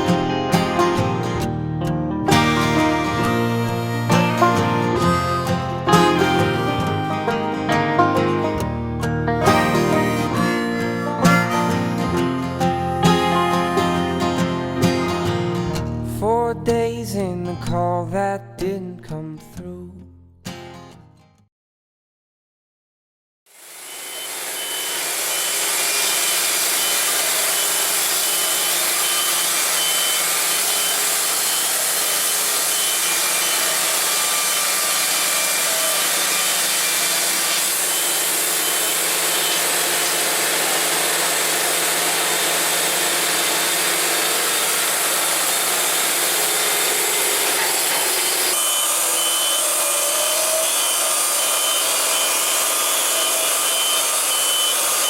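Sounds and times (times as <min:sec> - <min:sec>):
band saw cutting log: 0:02.3 - 0:08.8, 0:09.4 - 0:15.4, 0:23.5 - 0:55.0.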